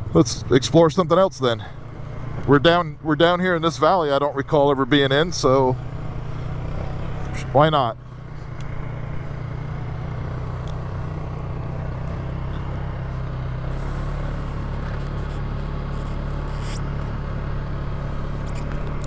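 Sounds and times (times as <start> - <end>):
quad bike engine running: 0.0 - 19.0.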